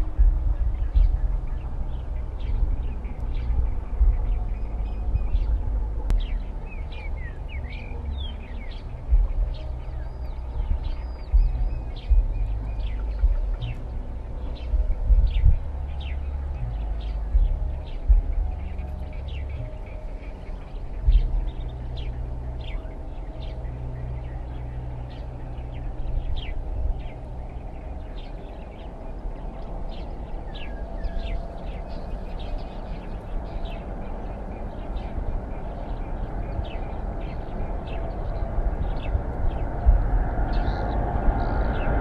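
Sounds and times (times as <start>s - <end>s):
low hum: 0.0s - 42.0s
small birds chirping: 0.0s - 42.0s.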